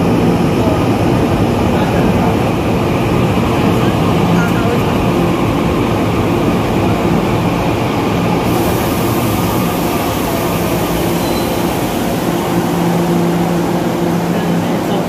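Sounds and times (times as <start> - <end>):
train rumble and hum: 0.0 - 15.0
high hiss: 8.4 - 14.2.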